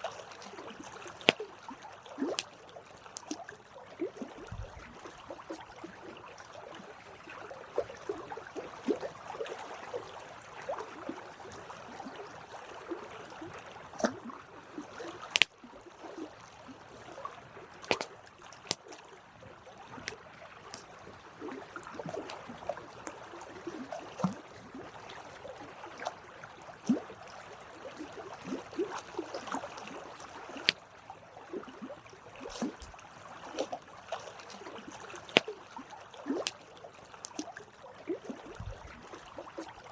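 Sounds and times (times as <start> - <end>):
campfire crackling and popping: 15.3 - 15.5, 32.5 - 33.0.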